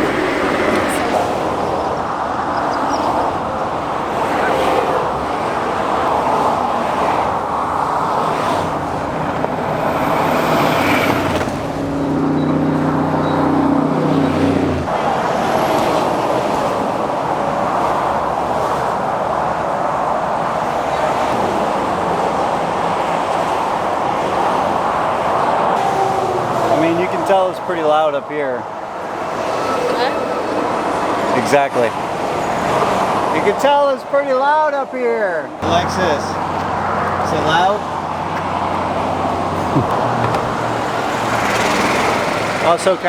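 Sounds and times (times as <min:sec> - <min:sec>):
highway traffic roar: 0:00.0 - 0:43.0
nearby vehicle engine droning: 0:35.6 - 0:43.0.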